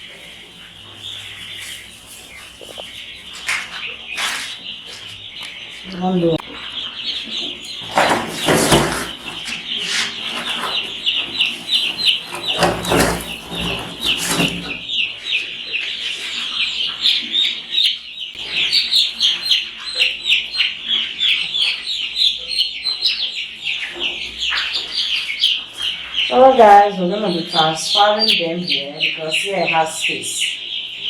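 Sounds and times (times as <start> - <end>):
baby chicks peeping: 0.0 - 31.0
rustling and knocking: 7.4 - 14.8.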